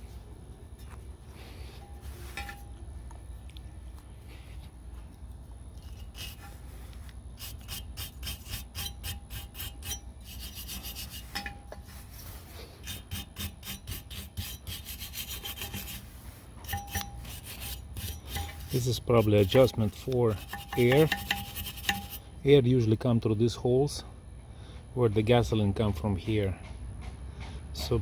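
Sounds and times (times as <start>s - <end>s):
scrubbing metal by hand: 0.0s - 2.9s, 5.3s - 22.2s.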